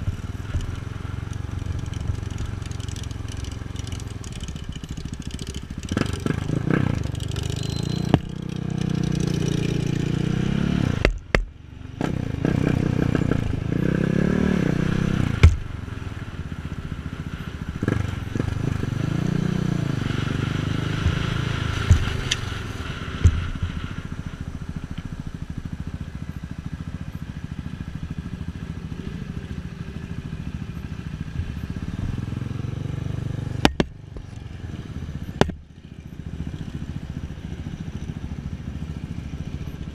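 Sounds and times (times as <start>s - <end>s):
motorcycle engine revving: 0.0s - 39.9s
sharp knocks: 15.4s - 15.6s, 21.0s - 22.5s, 33.6s - 34.0s.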